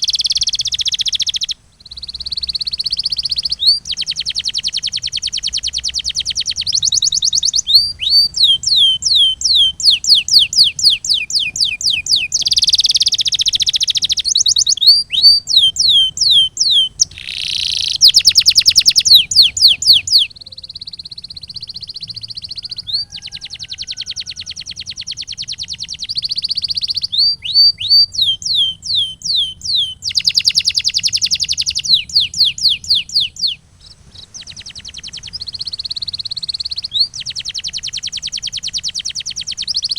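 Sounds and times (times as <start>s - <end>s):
canary singing trills and whistles: 0.0s - 39.9s.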